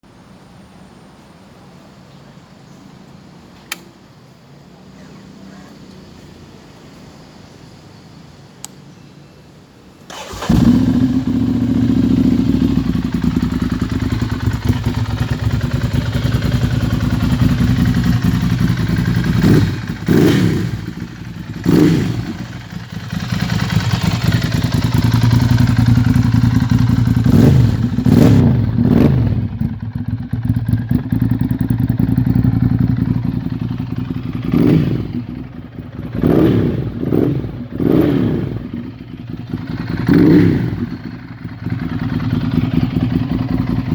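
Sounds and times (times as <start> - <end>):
motorcycle engine idling and revving: 4.6 - 8.9, 10.0 - 43.9.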